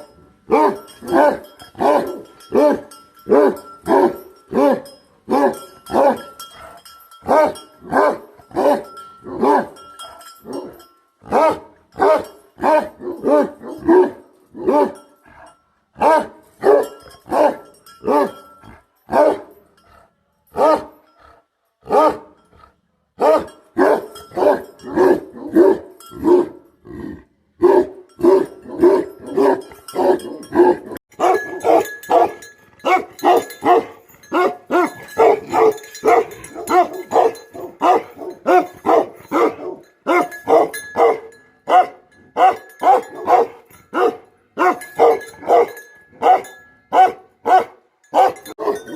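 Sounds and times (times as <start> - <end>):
dog barking deeply: 27.6 - 46.4.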